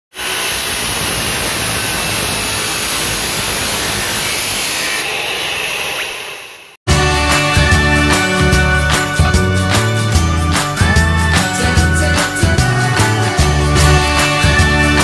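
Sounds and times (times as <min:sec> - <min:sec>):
loud steady mechanical noise: 0:00.1 - 0:06.8.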